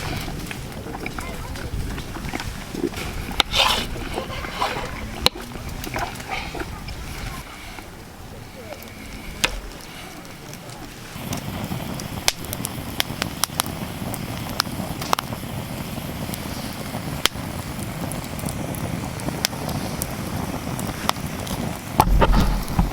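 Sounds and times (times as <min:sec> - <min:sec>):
sharp irregular pops: 0:00.0 - 0:06.8, 0:21.1 - 0:22.9
campfire grill sizzling: 0:00.0 - 0:22.9.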